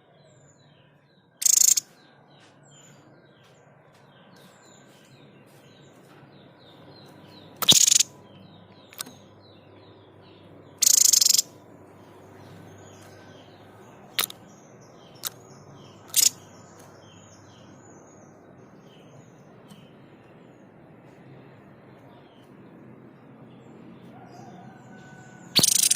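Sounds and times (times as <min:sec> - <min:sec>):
bird harsh sharp calls: 0:01.4 - 0:01.9, 0:07.6 - 0:08.2, 0:10.8 - 0:11.6, 0:16.0 - 0:16.5, 0:25.6 - 0:25.9.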